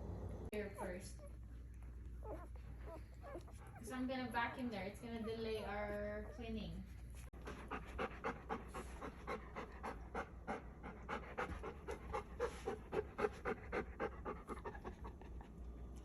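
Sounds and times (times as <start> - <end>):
dog panting fast: 7.2 - 15.6.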